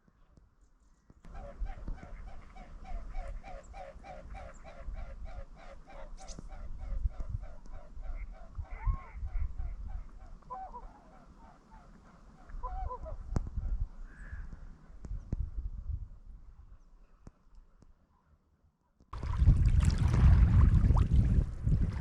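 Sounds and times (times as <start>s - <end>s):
wind rumble on microphone: 1.3s - 5.6s, 6.2s - 10.5s, 12.5s - 16.9s, 19.2s - 22.0s
short swan calls: 1.3s - 14.8s.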